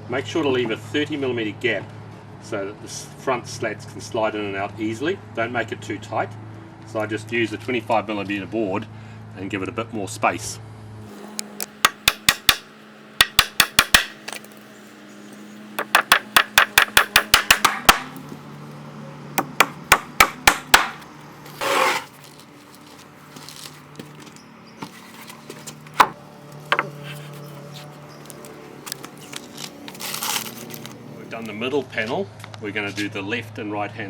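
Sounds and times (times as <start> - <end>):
hammer striking nails: 11.6 - 14.6, 15.8 - 18.2, 19.4 - 21.9
single knocks: 15.8 - 18.2, 19.4 - 21.1
short scrape: 21.5 - 22.4.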